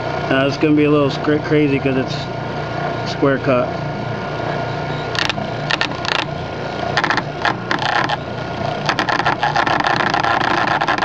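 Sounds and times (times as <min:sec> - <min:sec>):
lathe motor humming: 0:04.1 - 0:11.0
chisel clattering on spinning wood: 0:08.8 - 0:11.0.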